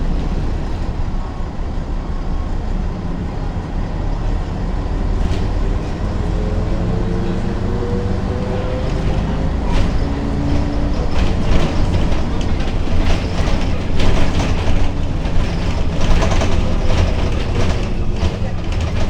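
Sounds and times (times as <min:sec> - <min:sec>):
bus body clattering: 0:00.0 - 0:19.0
bus diesel engine drone: 0:00.0 - 0:19.0.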